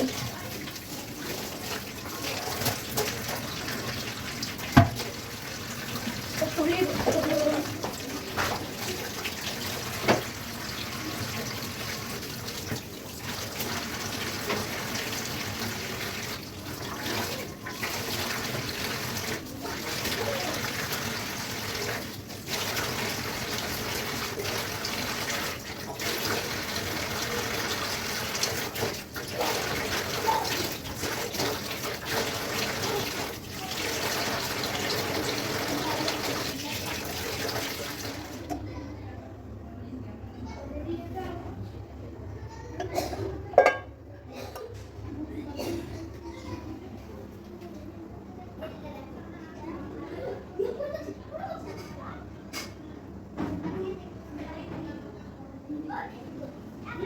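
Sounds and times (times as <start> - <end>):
tap water running into sink: 0.0 - 38.7.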